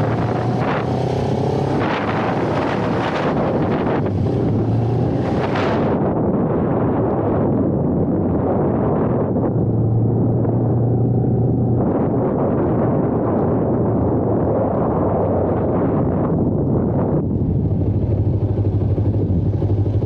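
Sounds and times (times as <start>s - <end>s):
motorcycle engine running: 0.0s - 6.0s, 17.3s - 20.0s
wind rush on microphone: 0.0s - 20.0s.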